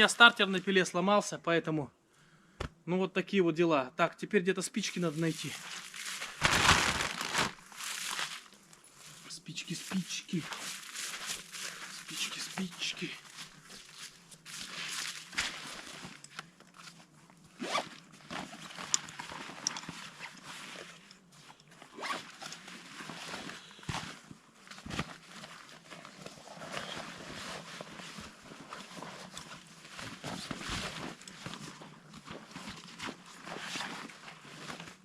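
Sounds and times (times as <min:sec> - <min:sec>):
fabric and gear rustling: 0:04.9 - 0:09.2, 0:10.3 - 0:35.0
zips being pulled: 0:17.5 - 0:18.6, 0:21.8 - 0:22.6.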